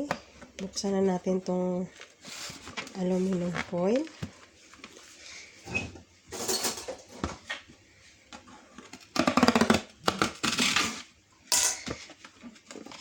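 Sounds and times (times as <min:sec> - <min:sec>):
aluminum foil crinkling: 0:00.7 - 0:05.5.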